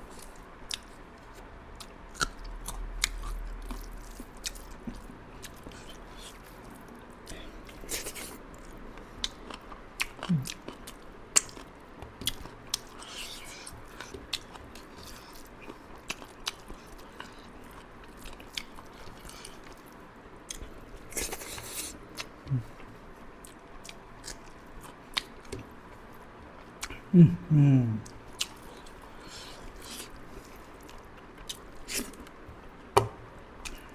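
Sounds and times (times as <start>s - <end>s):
person chewing food: 0.0s - 27.1s, 28.0s - 32.8s, 33.6s - 33.9s
short low voice sounds: 27.1s - 28.1s.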